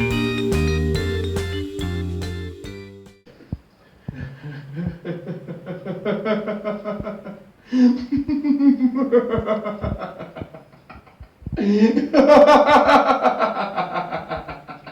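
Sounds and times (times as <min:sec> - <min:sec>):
person laughing: 0:04.1 - 0:14.9.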